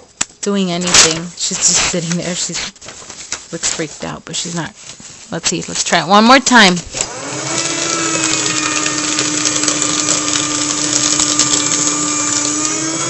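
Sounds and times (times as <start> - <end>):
paper shredder shredding paper: 5.7 - 13.0.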